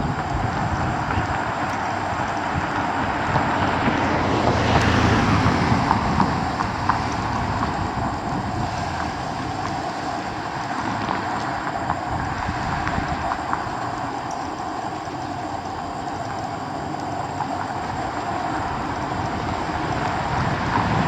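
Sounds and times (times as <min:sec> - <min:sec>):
moving car road noise: 0:00.0 - 0:21.0
faint ticks: 0:04.8 - 0:20.9.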